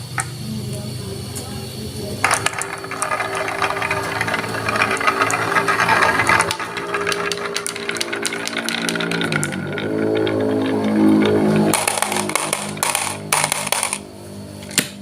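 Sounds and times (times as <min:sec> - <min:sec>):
marbles clattering down wooden run: 0:02.2 - 0:14.0.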